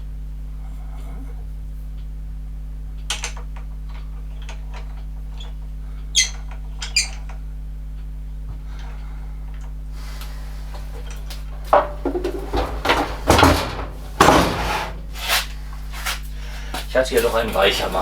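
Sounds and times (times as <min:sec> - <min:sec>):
steady low hum: 0:00.0 - 0:18.0
metal parts squeaking: 0:04.2 - 0:07.5, 0:10.8 - 0:15.4.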